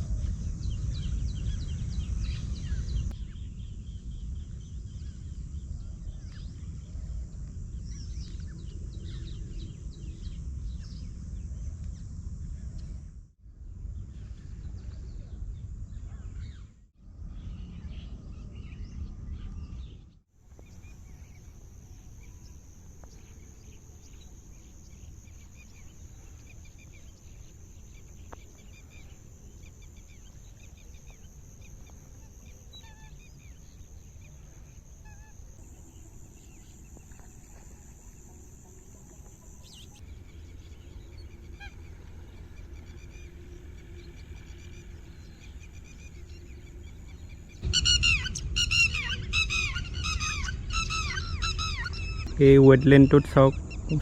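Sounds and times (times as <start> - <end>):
wind rumble on microphone: 0.0 - 54.0
flock of waterbirds calling: 34.4 - 54.0.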